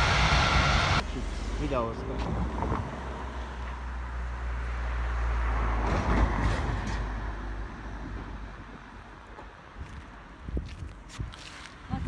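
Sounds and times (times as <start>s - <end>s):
vehicle passing rush: 0.0s - 9.0s
vehicle rumble: 0.0s - 12.0s.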